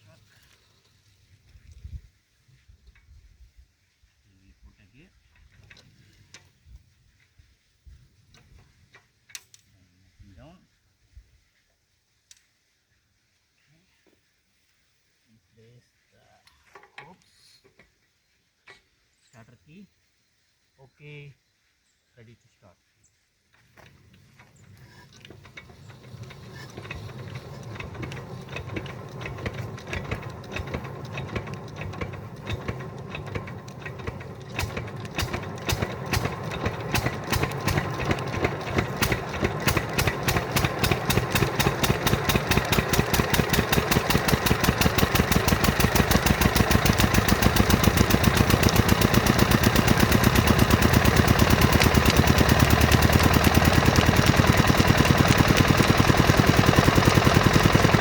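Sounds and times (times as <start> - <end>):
diesel engine starting and running: 25.1 - 58.0.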